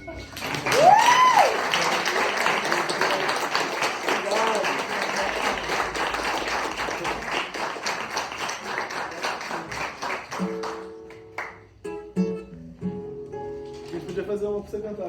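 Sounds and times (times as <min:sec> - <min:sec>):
audience applause: 0:00.2 - 0:11.6
acoustic strummed chords: 0:10.4 - 0:15.0.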